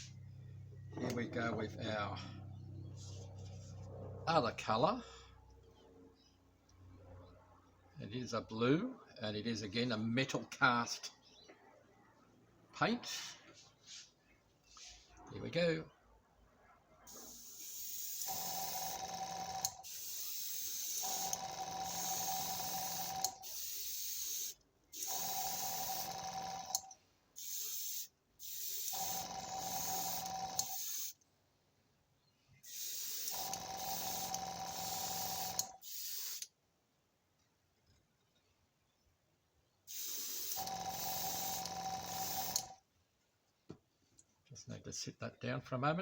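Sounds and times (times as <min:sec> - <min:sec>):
paint spraying in hissing bursts: 0:17.1 - 0:18.9, 0:19.8 - 0:21.3, 0:21.9 - 0:26.0, 0:27.4 - 0:31.2, 0:32.6 - 0:36.4, 0:39.9 - 0:42.6.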